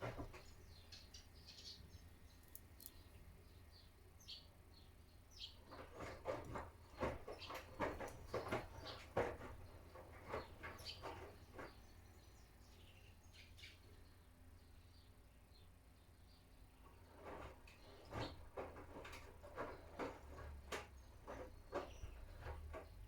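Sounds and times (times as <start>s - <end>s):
laundry sloshing in washing machine drum: 5.6s - 12.1s, 16.9s - 23.0s.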